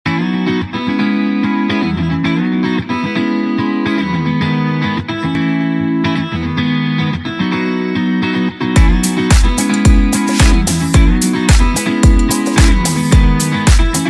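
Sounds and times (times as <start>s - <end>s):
guitar playing chords: 0.1s - 14.0s
drums: 8.8s - 14.0s.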